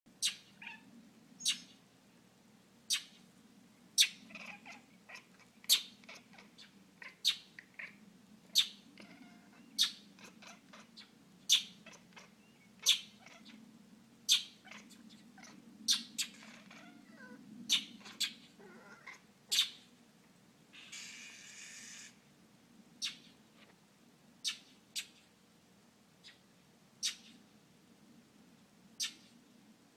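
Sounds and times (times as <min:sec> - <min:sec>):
cat chattering: 0:00.2 - 0:00.8, 0:04.0 - 0:13.6, 0:14.3 - 0:19.8, 0:23.0 - 0:23.4, 0:29.0 - 0:29.4.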